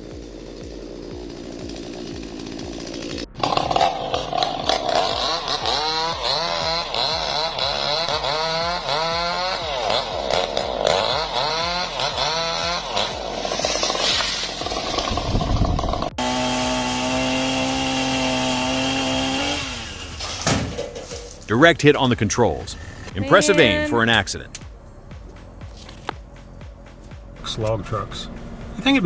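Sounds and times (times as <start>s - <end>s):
chainsaw cutting: 0.0s - 27.4s.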